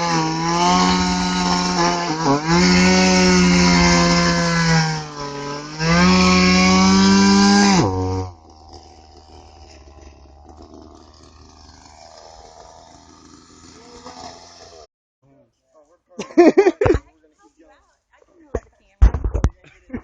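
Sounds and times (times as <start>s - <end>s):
chainsaw revving: 0.0s - 14.9s.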